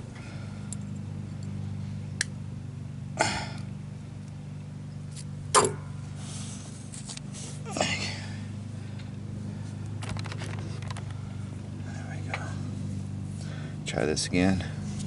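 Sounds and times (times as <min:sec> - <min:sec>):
steady low hum: 0:00.0 - 0:15.0
breathy grunts of effort: 0:03.2 - 0:03.7, 0:07.6 - 0:09.0.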